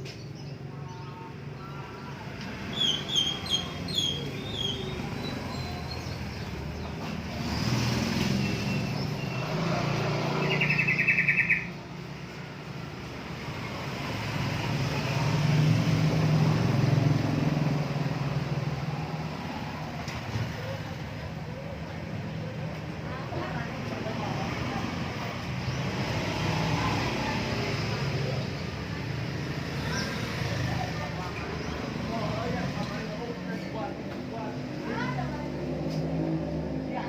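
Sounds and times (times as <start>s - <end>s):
birds chirping: 0.0s - 34.0s
fast bird trill: 10.4s - 11.7s.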